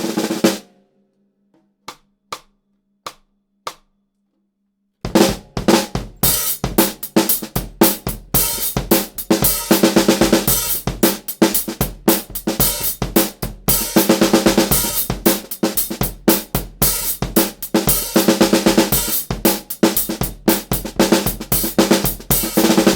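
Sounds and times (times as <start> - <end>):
drum kit groove: 0.0 - 0.6, 5.1 - 22.9
ringing snare drum: 5.1 - 22.9.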